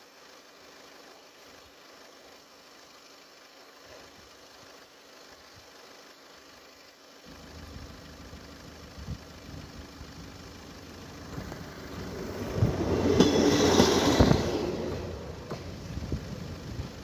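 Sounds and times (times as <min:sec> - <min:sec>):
diesel railcar engine hum: 0:00.0 - 0:17.0
wheels on rails: 0:07.3 - 0:17.0.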